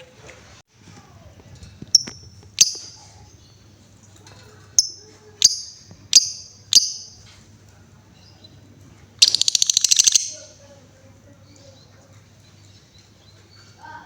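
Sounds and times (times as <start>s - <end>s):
lovebird rattling trill: 1.9s - 3.3s, 4.7s - 7.2s, 9.2s - 10.6s
lovebird chirping: 1.9s - 3.8s, 4.5s - 7.4s, 8.1s - 10.8s.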